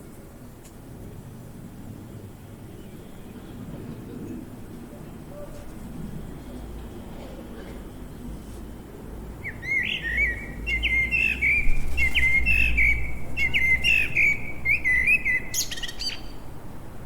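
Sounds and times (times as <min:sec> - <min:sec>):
songbird chirping and trilling: 0:09.4 - 0:16.4.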